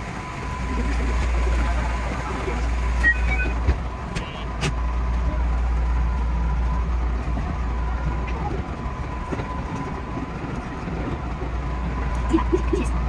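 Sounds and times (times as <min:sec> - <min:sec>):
electric train low rumble: 0:00.0 - 0:13.0
short beeps: 0:03.0 - 0:03.6.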